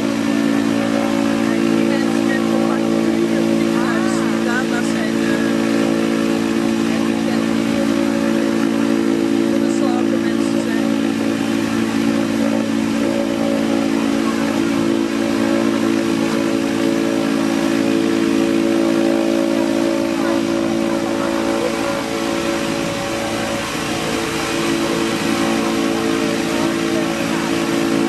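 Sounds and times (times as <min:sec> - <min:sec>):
propeller and engine hum: 0:00.0 - 0:28.0.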